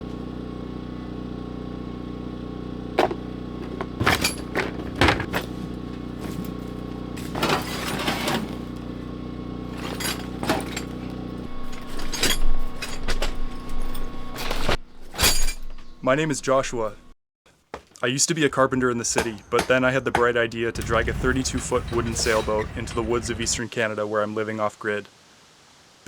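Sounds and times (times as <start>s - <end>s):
motor humming: 0.0s - 15.1s, 20.8s - 23.6s
knocks and clatter of work: 3.0s - 8.9s, 9.7s - 15.9s, 17.7s - 23.6s.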